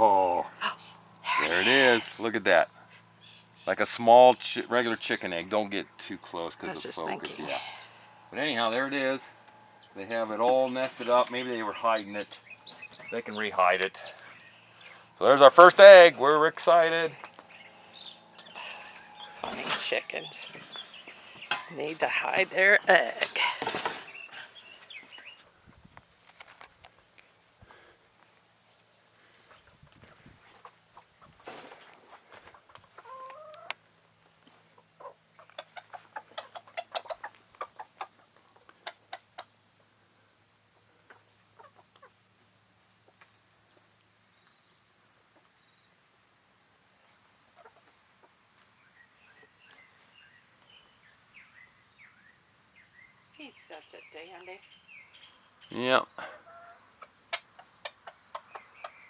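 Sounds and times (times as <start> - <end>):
chickens clucking: 4.5 - 25.5, 29.4 - 33.8, 34.4 - 39.9, 40.7 - 42.4, 47.0 - 50.7, 55.2 - 59.0.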